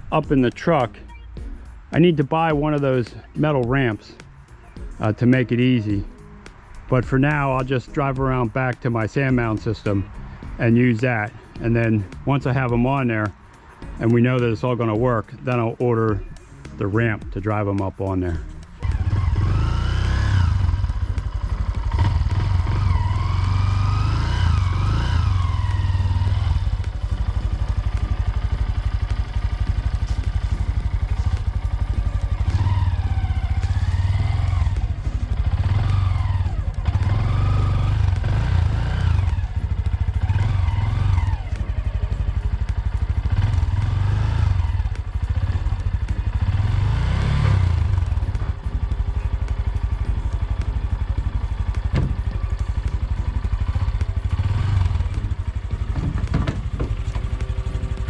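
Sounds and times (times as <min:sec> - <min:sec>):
motorcycle engine revving: 0:16.1 - 0:58.0
steady low rumble: 0:18.2 - 0:58.0.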